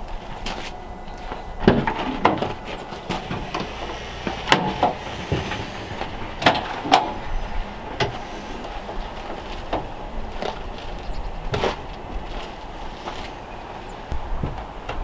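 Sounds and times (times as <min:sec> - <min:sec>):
knocks and clunks of handling: 0:01.2 - 0:07.2.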